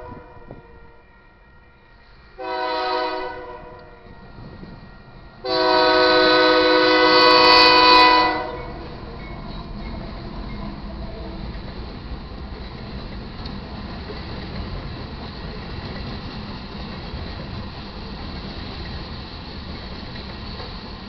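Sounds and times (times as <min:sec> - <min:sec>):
locomotive air horn blasts: 0:00.0 - 0:01.4, 0:02.4 - 0:04.7, 0:05.4 - 0:08.8
low rumble of moving train: 0:00.0 - 0:21.0.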